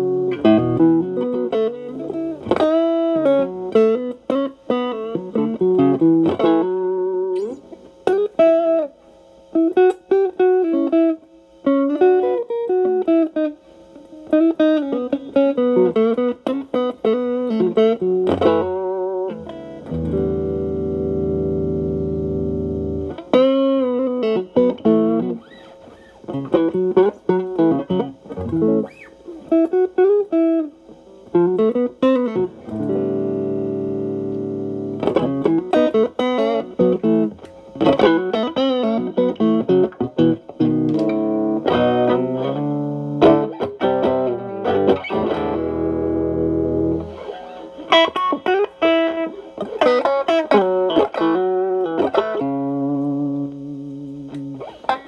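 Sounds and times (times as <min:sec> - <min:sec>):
distorted electric guitar: 0:00.0 - 0:55.0.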